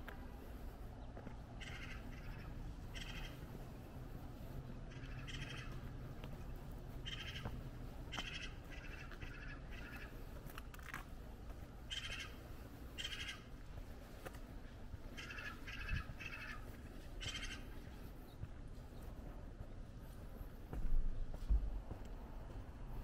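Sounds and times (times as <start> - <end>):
low outdoor background: 0.0 - 23.0
bird harsh calls: 1.6 - 3.6, 4.8 - 6.0, 7.0 - 10.3, 11.9 - 13.6, 15.1 - 18.0.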